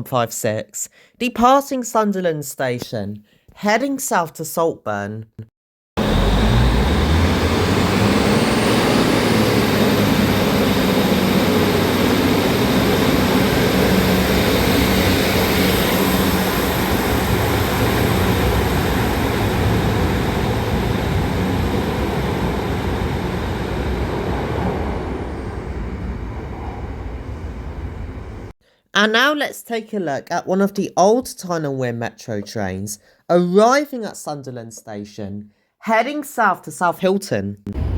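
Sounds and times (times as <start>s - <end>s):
diesel train engines with whine: 6.0s - 28.5s.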